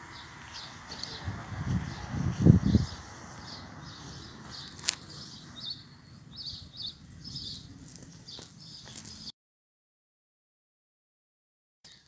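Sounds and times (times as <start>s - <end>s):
small bird chirping: 0.0s - 9.3s.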